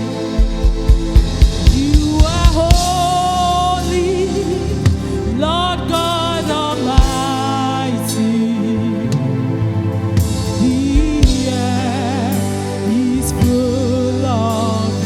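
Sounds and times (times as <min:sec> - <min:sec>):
band playing sustained chords: 0:00.0 - 0:15.0
drum hits: 0:00.4 - 0:03.2
person singing wordless vocal runs: 0:00.8 - 0:09.4, 0:10.6 - 0:15.0.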